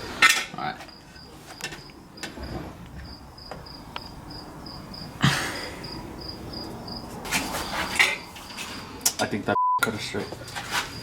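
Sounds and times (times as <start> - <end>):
insect chirping: 0.7 - 9.0.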